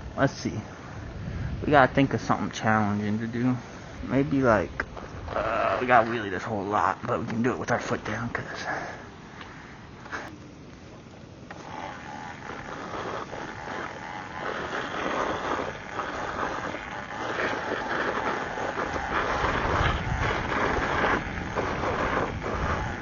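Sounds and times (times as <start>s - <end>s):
wind on microphone: 0.0s - 8.2s, 11.6s - 23.0s
electric motor and tyre noise: 0.8s - 8.2s, 11.5s - 23.0s.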